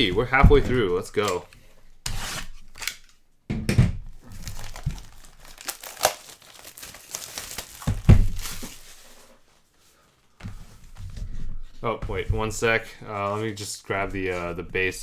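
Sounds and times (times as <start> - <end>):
plastic packaging crinkling and tearing: 4.2 - 9.3.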